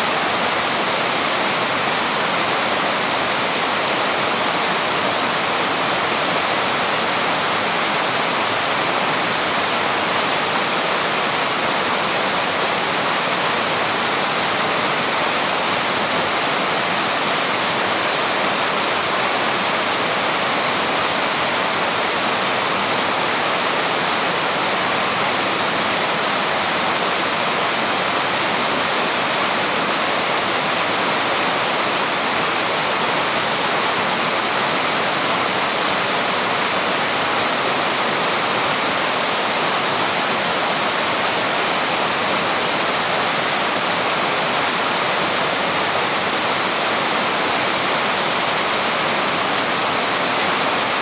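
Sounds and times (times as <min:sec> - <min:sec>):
small waterfall rushing: 0:00.0 - 0:51.0.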